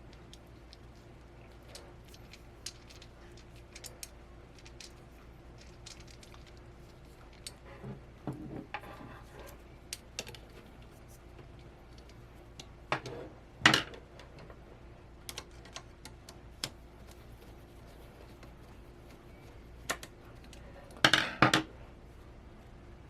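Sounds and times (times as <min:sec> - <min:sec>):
small hard parts clicking and clinking: 0:00.0 - 0:07.6.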